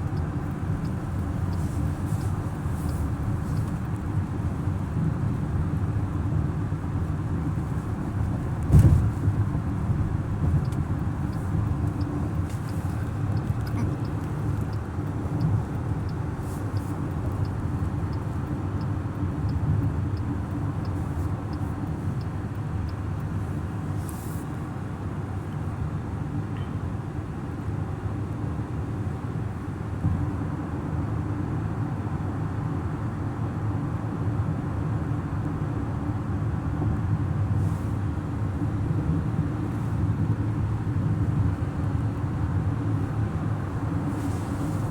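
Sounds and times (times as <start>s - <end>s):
light regular ticking: 0.0s - 4.2s, 9.7s - 24.0s
car engine and road rumble: 0.0s - 44.9s
thump: 8.7s - 9.2s.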